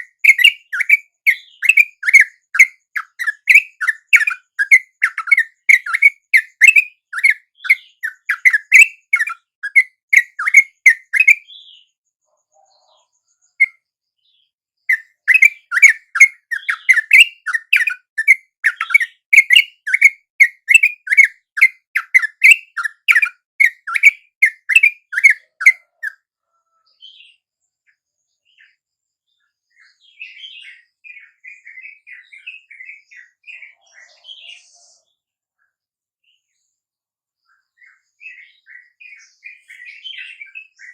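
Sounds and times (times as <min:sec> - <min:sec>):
bird quick repeated chirping: 0:00.0 - 0:11.9, 0:14.9 - 0:26.2
faint bird chatter: 0:00.0 - 0:40.9.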